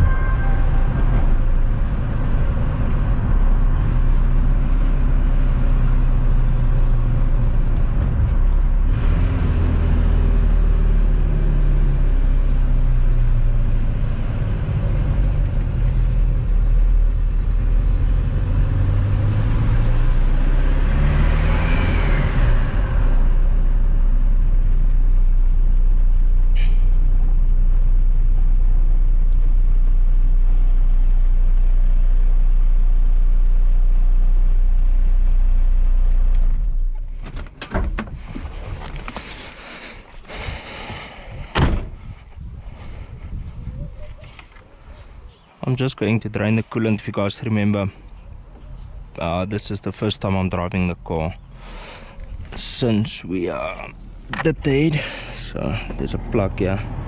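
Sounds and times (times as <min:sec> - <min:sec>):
turbo whistle: 0:00.0 - 0:01.6
car engine accelerating: 0:00.0 - 0:37.2, 0:51.4 - 0:57.0.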